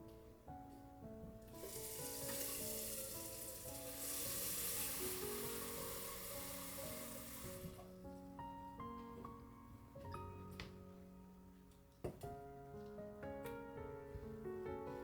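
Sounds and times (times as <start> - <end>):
soft background music: 0.0 - 15.0
food sizzling in a frying pan: 1.6 - 7.8.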